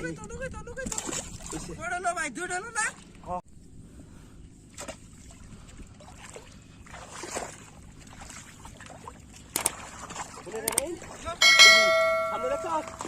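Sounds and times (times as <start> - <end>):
water sloshing around boat: 0.8 - 13.0
splashes or knocks: 0.9 - 1.7, 6.0 - 13.0.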